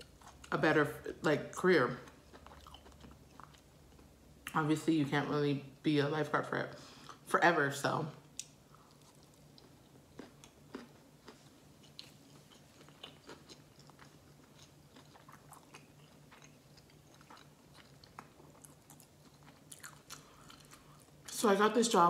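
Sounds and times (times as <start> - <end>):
close-up chewing: 1.9 - 4.1, 8.4 - 21.4.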